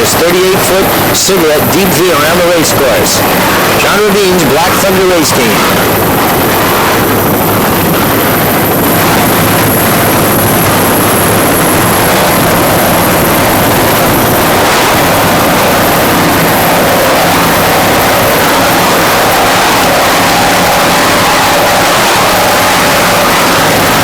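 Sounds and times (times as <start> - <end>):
powerboat engines roaring: 0.0 - 24.0
rush of wind and water: 0.0 - 24.0.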